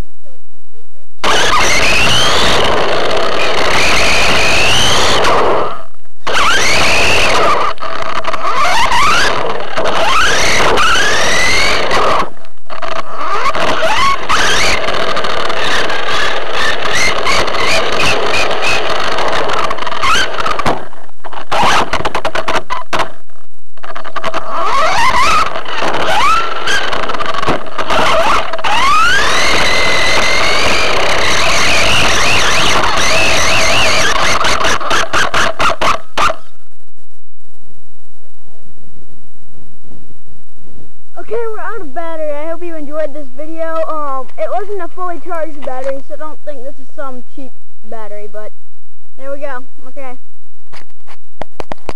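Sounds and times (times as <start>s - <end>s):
electric motor whining: 1.2s - 22.5s, 24.0s - 36.3s.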